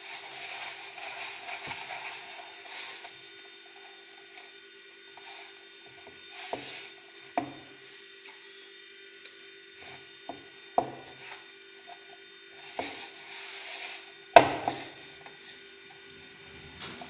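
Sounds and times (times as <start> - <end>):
dough rubbing and squelching: 0.0 - 4.2, 12.5 - 17.0
dough slapping and knocking: 14.4 - 15.0.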